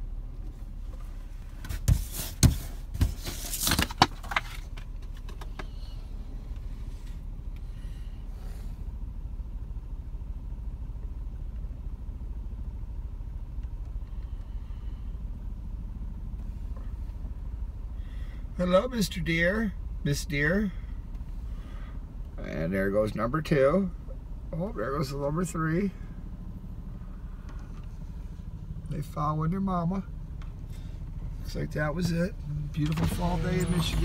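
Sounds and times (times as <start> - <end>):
vehicle engine low hum: 0.0 - 34.0.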